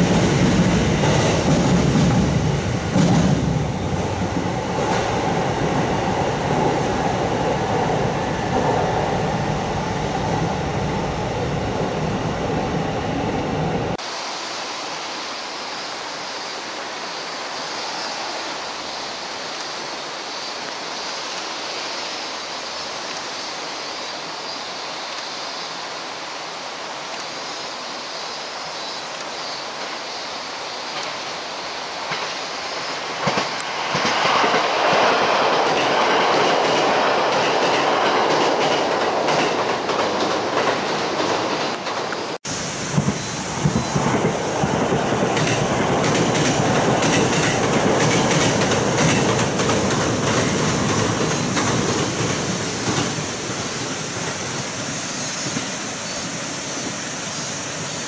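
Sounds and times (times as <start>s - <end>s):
electric train pulling out in tunnel: 0.0s - 58.0s
train approaching with steady hiss: 0.0s - 58.0s.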